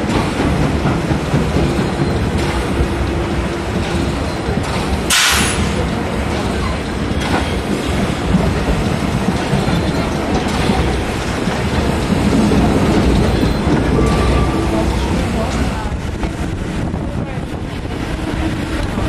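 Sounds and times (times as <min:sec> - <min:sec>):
train wheels clattering on rails: 0:00.0 - 0:19.0
rushing air: 0:04.8 - 0:09.3
steam hiss: 0:05.1 - 0:05.8.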